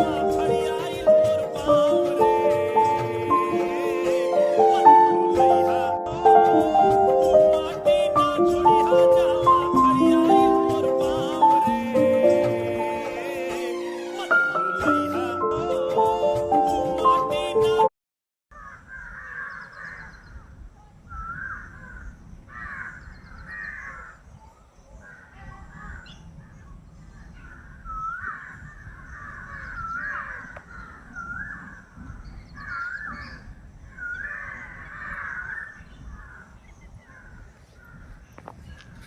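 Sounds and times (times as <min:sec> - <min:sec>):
crows cawing: 0:18.5 - 0:20.1, 0:21.4 - 0:24.2, 0:28.2 - 0:31.0, 0:34.0 - 0:36.5.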